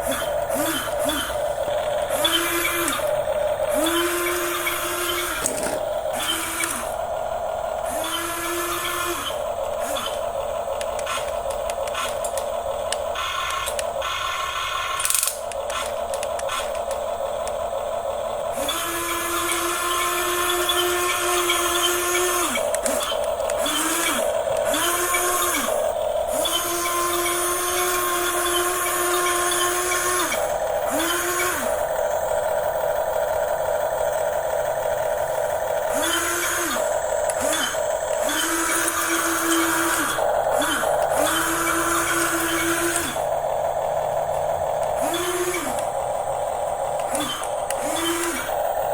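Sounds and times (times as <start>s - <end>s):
gear rattle: 0.0s - 48.9s
small electric motors whining: 0.0s - 48.9s.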